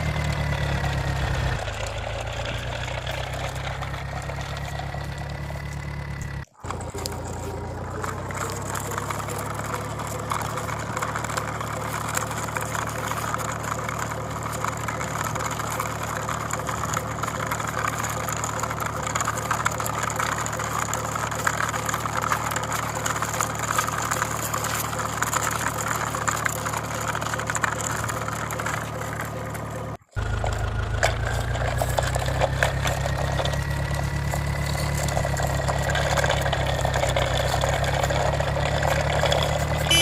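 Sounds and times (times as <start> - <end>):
rattling engine: 0.0 - 40.0
tractor engine idling: 0.0 - 40.0.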